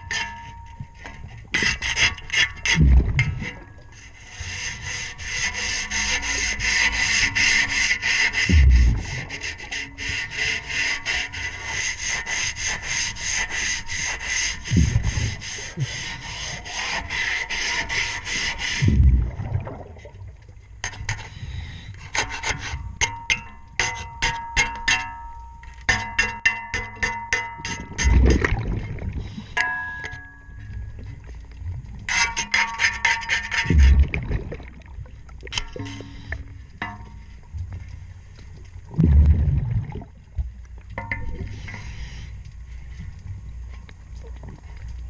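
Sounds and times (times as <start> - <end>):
underwater scraping on propeller: 1.4 - 19.3, 32.0 - 34.6, 35.5 - 36.7.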